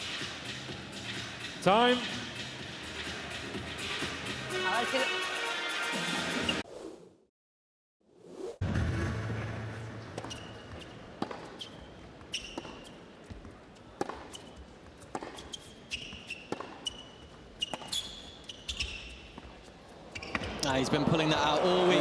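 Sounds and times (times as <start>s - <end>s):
tennis ball struck and bouncing: 9.8s - 18.3s
sneakers squeaking on hard court: 10.0s - 20.7s.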